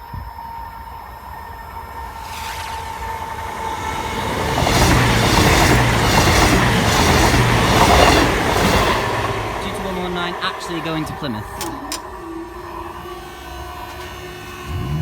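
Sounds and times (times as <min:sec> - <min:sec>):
diesel train passing: 0:00.3 - 0:15.0
wheels clattering over track: 0:03.8 - 0:12.4.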